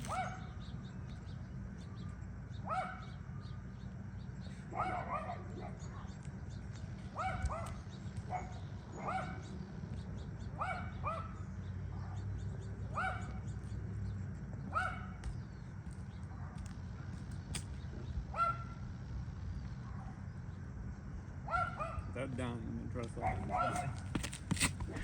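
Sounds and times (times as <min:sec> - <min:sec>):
dog barking: 0:00.0 - 0:00.6, 0:02.6 - 0:03.2, 0:04.6 - 0:06.2, 0:07.1 - 0:09.5, 0:10.6 - 0:12.3, 0:12.9 - 0:13.5, 0:14.7 - 0:15.2, 0:18.3 - 0:18.8, 0:19.8 - 0:20.2, 0:21.4 - 0:22.2, 0:23.2 - 0:24.0
steady low hum: 0:00.0 - 0:25.0.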